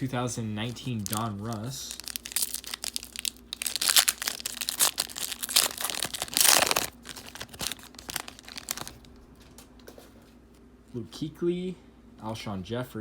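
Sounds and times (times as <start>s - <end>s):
plastic wrapper crinkling: 0.0s - 9.3s
plastic wrapper tearing: 0.5s - 9.2s.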